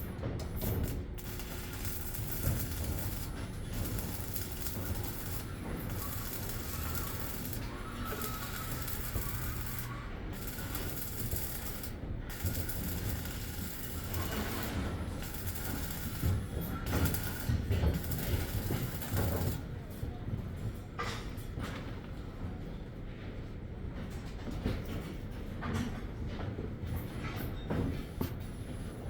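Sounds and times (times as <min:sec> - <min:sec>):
machinery running: 0:00.0 - 0:19.6.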